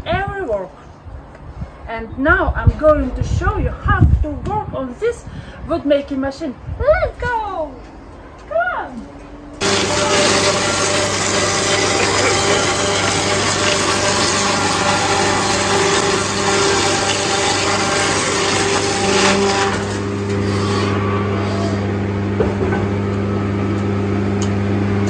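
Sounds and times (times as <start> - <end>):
machine hum: 9.4 - 25.0
sawmill machine hiss: 9.6 - 21.9.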